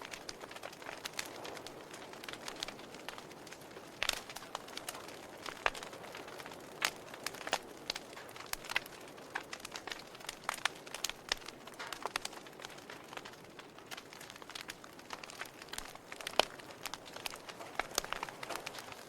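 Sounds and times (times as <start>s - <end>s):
soft fire hiss: 0.0s - 19.0s
wood fire crackling and popping: 0.0s - 19.0s.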